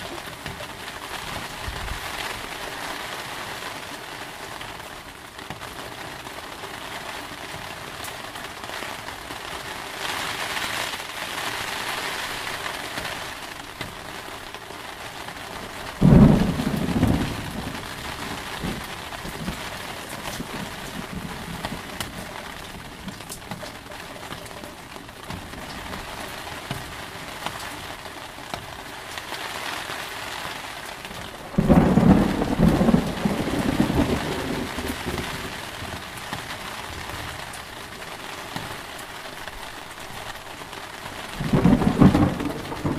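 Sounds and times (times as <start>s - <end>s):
heavy rain: 0.0s - 42.9s
thunder clap: 15.9s - 23.7s, 31.1s - 37.2s, 41.4s - 42.9s.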